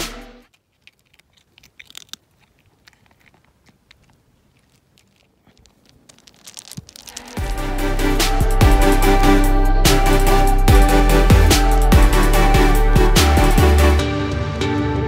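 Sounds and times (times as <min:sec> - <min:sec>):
background music: 0:00.0 - 0:00.5, 0:07.4 - 0:15.0
faint clicks and crackles: 0:00.5 - 0:07.4.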